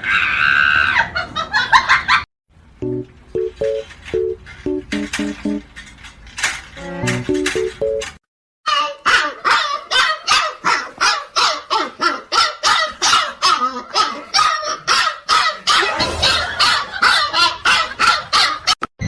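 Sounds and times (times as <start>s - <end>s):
dog barking rapidly: 8.9s - 18.8s.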